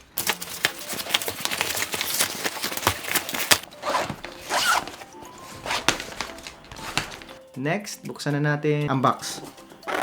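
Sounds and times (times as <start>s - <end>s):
fabric rustling: 0.3s - 7.4s
zipper being pulled open: 3.5s - 5.9s.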